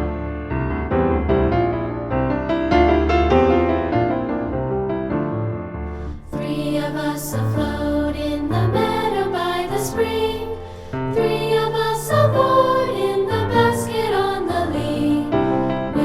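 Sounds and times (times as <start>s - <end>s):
piano chords: 0.0s - 16.0s
choral song: 6.0s - 16.0s.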